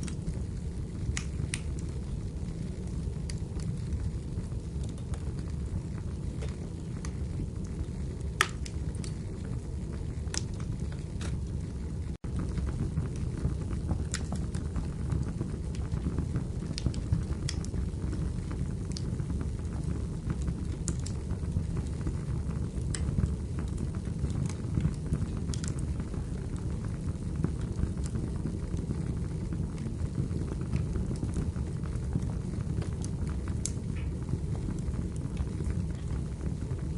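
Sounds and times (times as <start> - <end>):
fire crackles and pops: 0.0 - 36.9
fireplace fire rumbling: 0.0 - 36.9.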